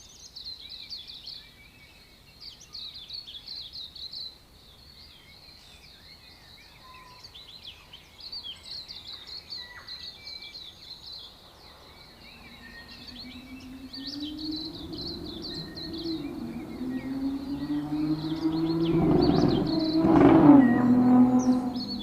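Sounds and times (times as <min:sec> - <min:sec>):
birds chirping and whistling: 0:09.3 - 0:22.0
low engine drone: 0:11.9 - 0:22.0.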